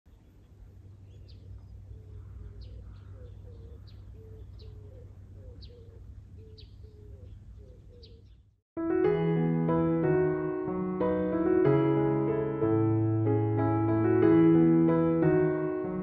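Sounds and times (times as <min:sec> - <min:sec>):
low repeated bird notes: 0:00.1 - 0:08.6
low rumble of outdoor air: 0:00.1 - 0:08.6.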